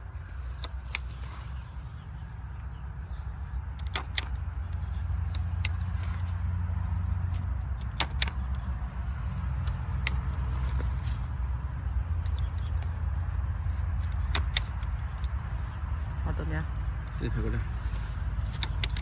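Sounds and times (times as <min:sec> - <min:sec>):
tape-binding tool clicking: 0:03.7 - 0:10.9, 0:14.0 - 0:15.5, 0:18.4 - 0:19.0.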